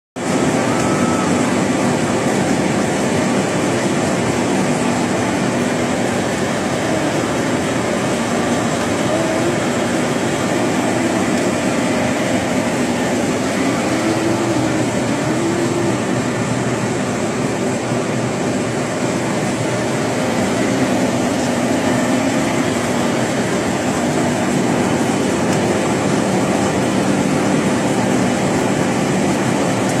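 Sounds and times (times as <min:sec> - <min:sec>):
vehicle running rumble and hiss: 0:00.2 - 0:30.0.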